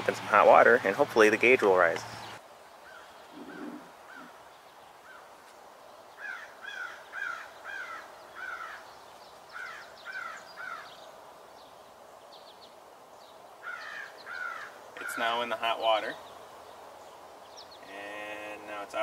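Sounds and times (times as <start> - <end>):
bird calling short arched calls: 2.9 - 4.4, 13.6 - 15.3.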